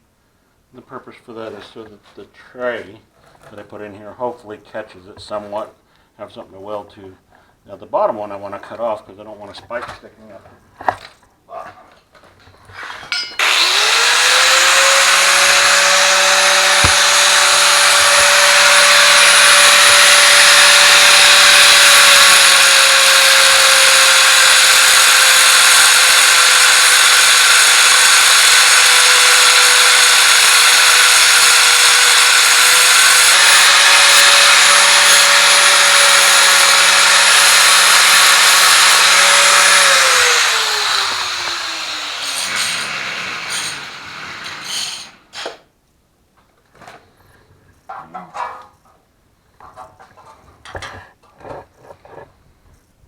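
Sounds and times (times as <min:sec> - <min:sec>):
angle grinder cutting steel: 0:12.8 - 0:45.6.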